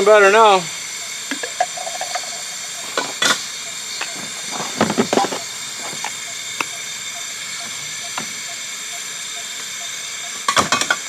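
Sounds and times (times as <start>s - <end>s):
camping stove burner hissing: 0.0s - 11.0s
knocks and clinks: 1.3s - 3.4s.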